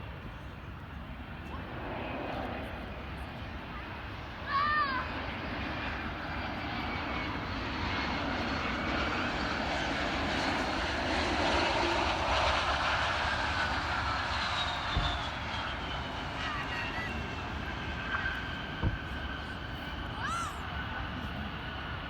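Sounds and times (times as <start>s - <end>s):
jet engine rush: 0.0s - 22.0s
high engine whine falling: 13.6s - 20.4s
low thump: 14.9s - 15.3s, 18.8s - 19.2s.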